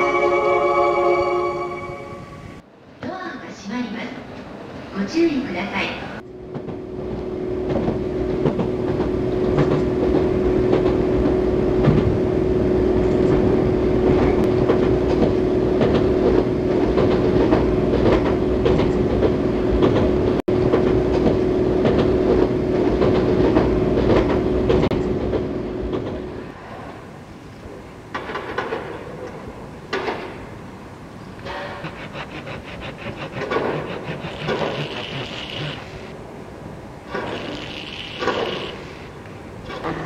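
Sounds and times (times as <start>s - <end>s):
wheels clicking over rail joints: 6.2s - 12.2s, 13.0s - 26.5s, 28.0s - 30.5s, 31.2s - 36.1s
train motor whine: 6.3s - 26.6s, 31.4s - 36.2s.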